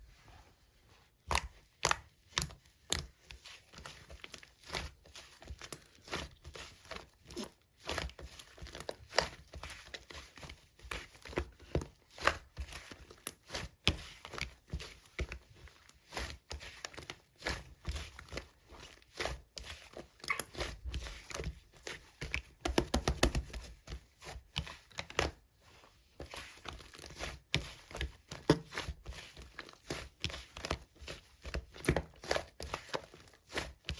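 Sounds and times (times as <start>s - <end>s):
slime squishing with clicks and pops: 1.2s - 3.2s, 20.2s - 20.8s.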